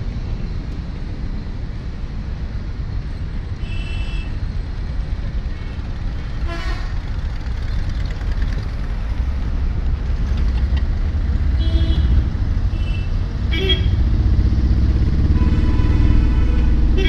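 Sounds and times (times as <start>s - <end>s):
vehicle engine and tyres rumble: 0.0s - 17.0s
horn toots: 15.2s - 17.0s.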